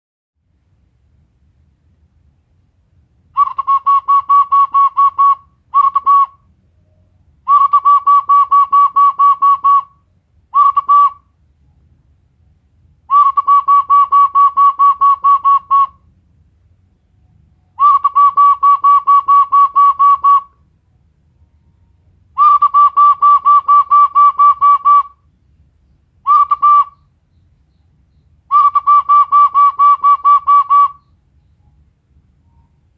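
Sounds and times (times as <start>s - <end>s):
bird whistle pulsing call: 3.4s - 6.4s, 7.5s - 10.0s, 10.6s - 11.2s, 13.1s - 16.0s, 17.8s - 20.6s, 22.4s - 25.2s, 26.2s - 27.4s, 28.1s - 31.2s.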